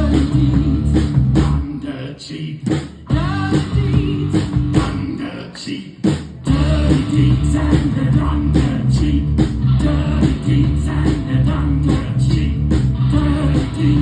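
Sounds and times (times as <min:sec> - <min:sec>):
rock band playing: 0:00.0 - 0:01.6, 0:03.1 - 0:05.1, 0:06.3 - 0:14.0.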